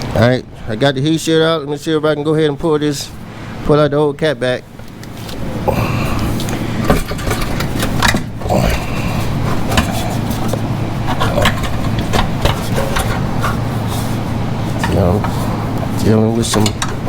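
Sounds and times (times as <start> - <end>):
steady low hum: 0.0 - 17.0
metal knocks and clanks: 6.8 - 8.5, 9.4 - 13.7, 16.4 - 17.0.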